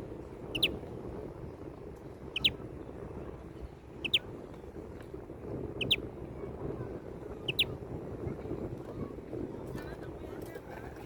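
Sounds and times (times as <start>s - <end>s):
finch chirping: 0.5s - 0.7s, 2.4s - 2.6s, 4.0s - 4.2s, 5.8s - 6.0s, 7.4s - 7.7s.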